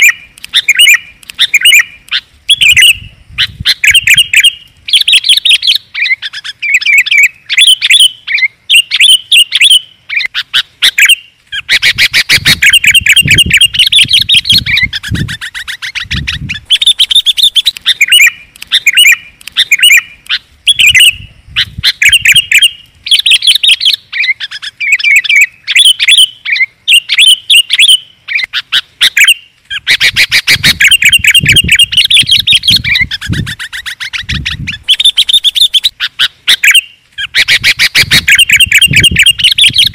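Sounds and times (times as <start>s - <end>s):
bulbul song with chattering: 10.6s - 26.3s, 30.0s - 39.9s.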